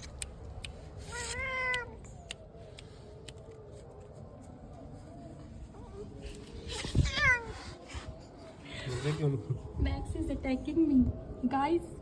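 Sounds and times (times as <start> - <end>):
cat meowing: 1.1 - 2.2, 6.8 - 7.7.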